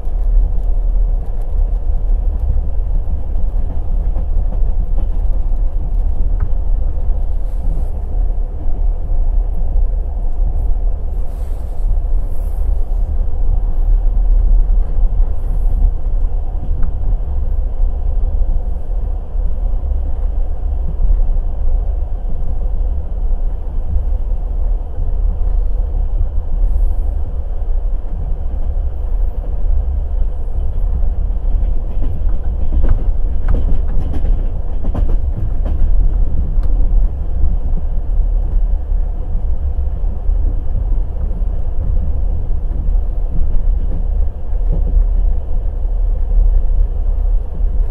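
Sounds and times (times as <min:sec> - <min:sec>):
train wheels clattering on rails: 0:00.0 - 0:08.4, 0:25.2 - 0:47.9.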